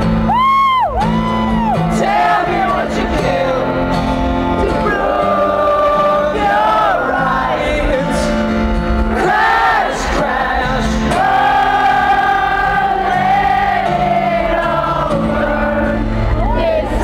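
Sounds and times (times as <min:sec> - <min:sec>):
rock band playing live: 0:00.0 - 0:17.0
person singing: 0:01.7 - 0:08.5.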